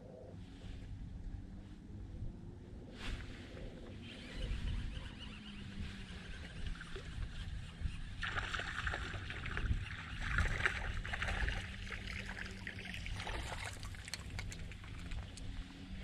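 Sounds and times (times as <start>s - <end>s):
low rumble of wind: 0.0s - 16.0s
water sloshing and splashing: 8.1s - 15.8s.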